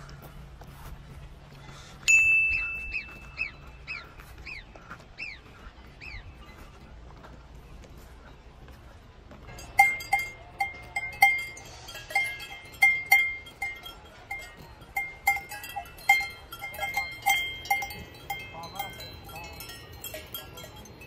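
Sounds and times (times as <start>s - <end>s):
livestock neck bells clanking: 2.1s - 3.8s, 9.5s - 21.0s.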